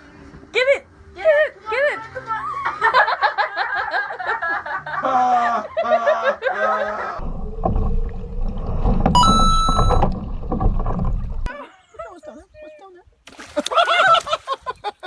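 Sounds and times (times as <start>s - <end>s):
low rumble: 7.2s - 11.5s
brief high tone: 9.2s - 10.1s.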